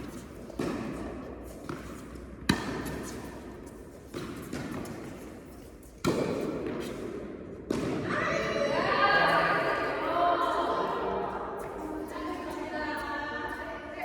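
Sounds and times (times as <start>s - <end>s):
tennis ball bouncing on court: 0.1s - 8.1s
tennis ball struck by rackets: 0.6s - 5.4s, 6.0s - 8.1s.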